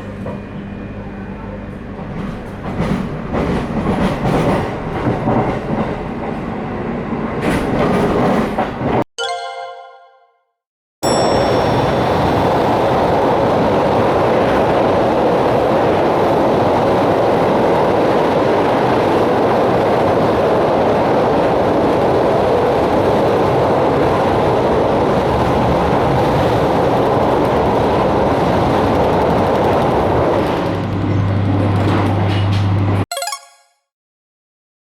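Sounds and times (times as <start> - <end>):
train wheels rumbling on track: 1.6 - 9.0.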